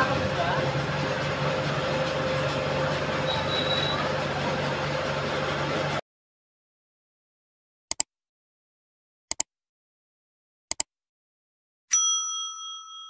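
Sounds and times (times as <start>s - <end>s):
bell ding: 11.9s - 13.0s.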